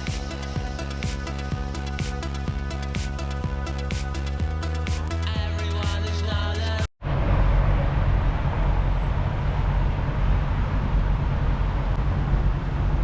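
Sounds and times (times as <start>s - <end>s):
electronic music: 0.0s - 6.9s
low vehicle engine rumble: 0.0s - 13.0s.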